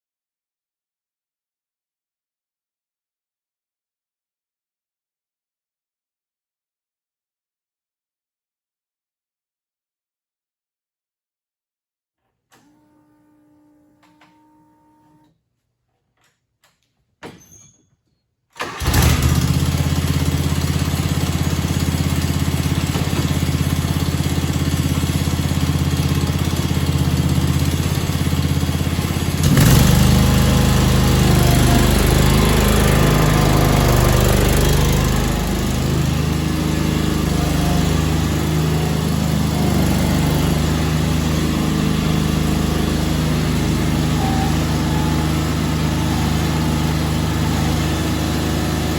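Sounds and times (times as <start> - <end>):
garden tractor engine starting: 18.6 - 48.9.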